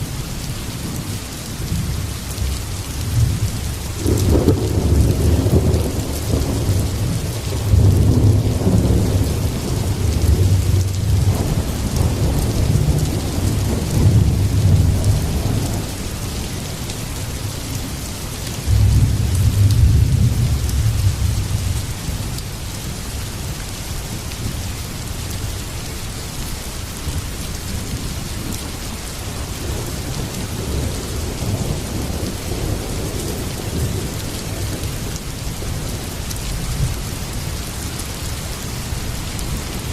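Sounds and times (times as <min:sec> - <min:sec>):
heavy rain falling: 0:00.0 - 0:39.9
thunder rumbling: 0:01.7 - 0:17.8, 0:18.6 - 0:22.2, 0:29.3 - 0:37.0.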